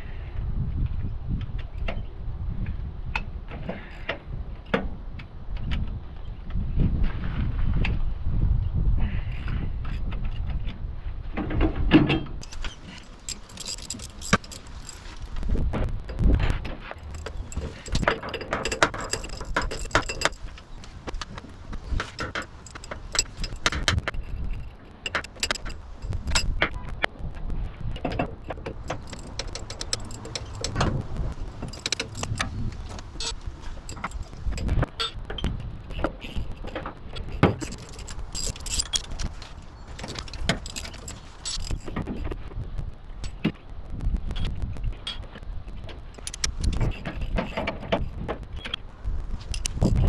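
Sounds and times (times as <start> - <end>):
low rumbling handling noise: 11.4 - 50.0
metal tools clinking and knocking: 12.4 - 15.5, 16.1 - 26.6, 28.2 - 35.2, 36.3 - 42.1, 46.2 - 47.6.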